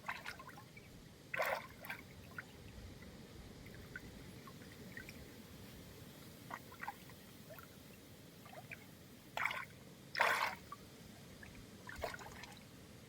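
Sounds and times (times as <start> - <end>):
low background hiss: 0.0 - 13.0
water dripping and splashing: 11.4 - 12.6.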